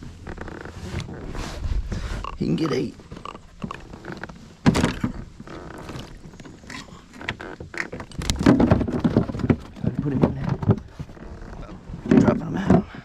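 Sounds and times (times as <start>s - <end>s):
knocks against kayak hull: 4.6s - 6.3s, 7.3s - 11.2s.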